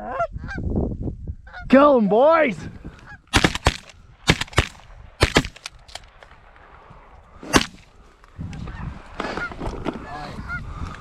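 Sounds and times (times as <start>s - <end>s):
shotgun shots: 3.3s - 6.0s, 7.5s - 7.9s.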